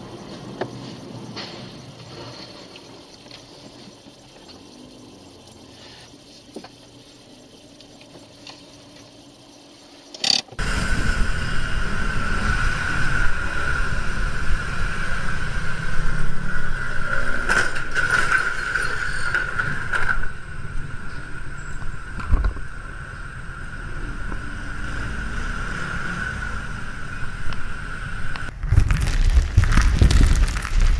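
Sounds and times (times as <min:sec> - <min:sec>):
road and engine rumble: 0:00.0 - 0:30.9.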